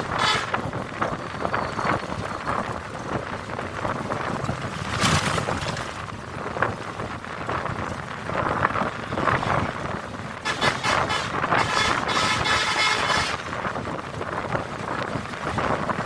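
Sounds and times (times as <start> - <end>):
vehicle horn: 0.0 - 0.7, 10.4 - 13.7
bus road and wind noise: 0.0 - 16.0.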